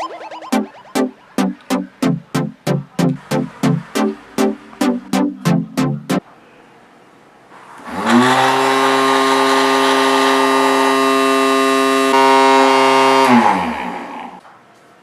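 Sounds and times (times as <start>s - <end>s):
small electric motor humming: 7.9s - 14.1s.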